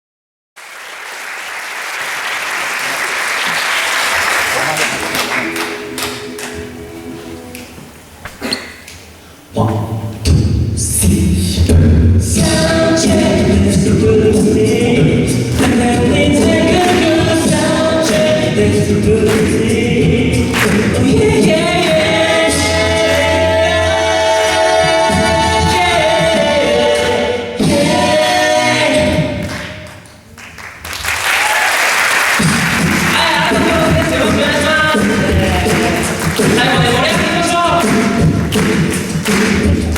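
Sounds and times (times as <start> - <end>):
a cappella group singing harmony: 10.8 - 29.8, 33.1 - 39.9.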